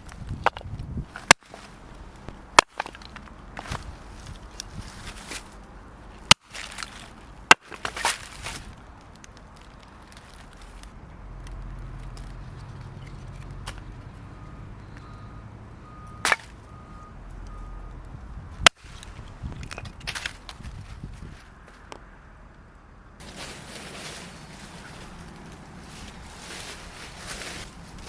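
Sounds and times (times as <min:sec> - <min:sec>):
quiet rustling and handling: 0:00.0 - 0:15.2, 0:15.9 - 0:22.1, 0:23.2 - 0:28.0
wood being chopped: 0:00.3 - 0:03.9, 0:06.2 - 0:08.7, 0:16.2 - 0:16.6, 0:18.6 - 0:18.9.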